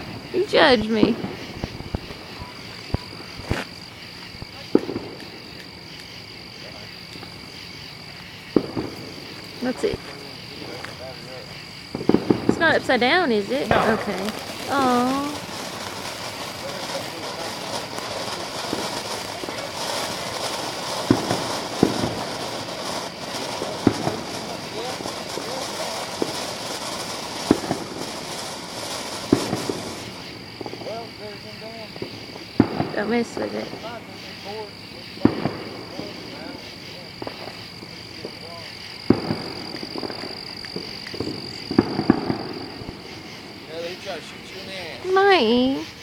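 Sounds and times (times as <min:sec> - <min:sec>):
sharp pops: 0:00.0 - 0:06.2, 0:07.0 - 0:11.2, 0:11.8 - 0:31.0, 0:37.1 - 0:43.2
firework hissing sparks: 0:00.0 - 0:46.0
night insects trilling: 0:00.0 - 0:46.0.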